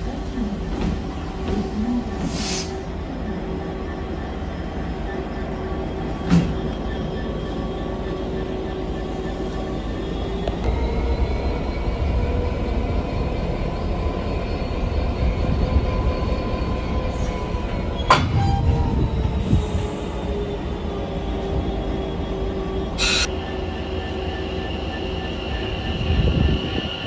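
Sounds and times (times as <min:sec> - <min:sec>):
train rumbling: 0:00.0 - 0:27.0
faint held tones: 0:23.0 - 0:25.9.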